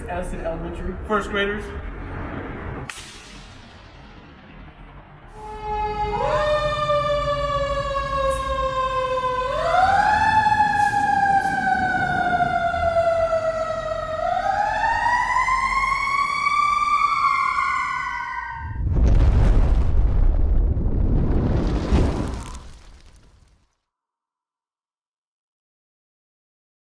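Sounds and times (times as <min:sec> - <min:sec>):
loud burst of noise: 0:01.8 - 0:05.7
fire engine siren wailing: 0:04.0 - 0:18.8.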